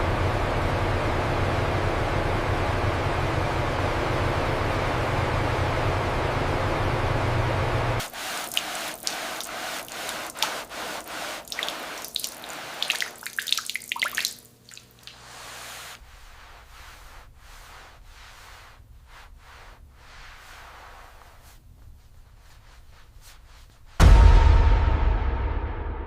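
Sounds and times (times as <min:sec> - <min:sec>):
water dripping and splashing: 0:08.0 - 0:16.0
rushing water spray: 0:08.0 - 0:18.8.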